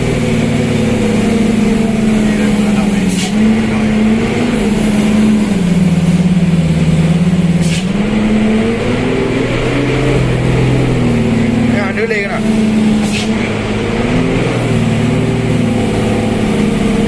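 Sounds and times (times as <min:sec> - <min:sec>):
truck engine labouring: 0:00.0 - 0:17.0.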